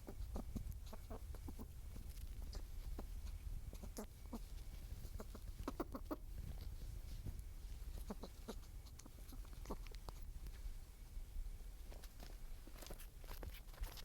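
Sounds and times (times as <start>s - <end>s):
animal clicks or clucks: 0.0s - 6.7s, 8.0s - 10.3s.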